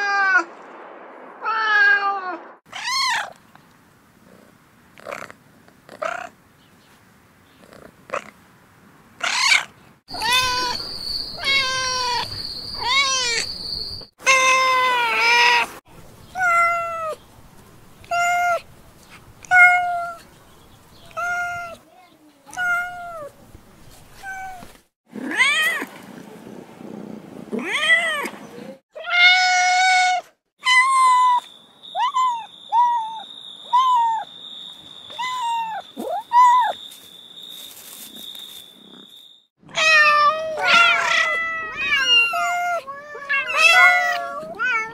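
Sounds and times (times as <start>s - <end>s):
kittens meowing: 9.2s - 10.8s, 11.4s - 13.5s, 30.6s - 34.3s, 35.1s - 36.8s, 39.8s - 44.9s.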